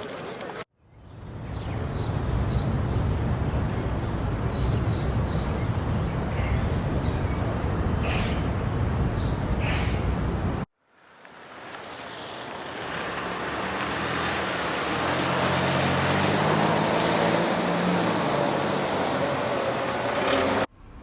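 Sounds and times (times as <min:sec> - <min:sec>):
birds chirping: 0:00.9 - 0:10.6.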